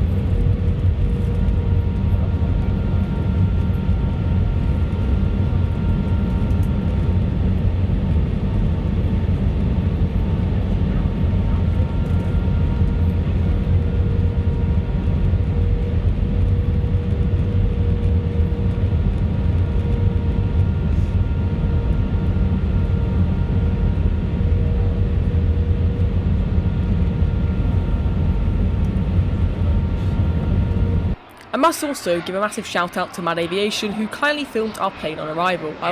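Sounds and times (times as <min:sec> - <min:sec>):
faint whining tones: 0:00.0 - 0:31.9
jet airliner rumble: 0:00.0 - 0:35.9.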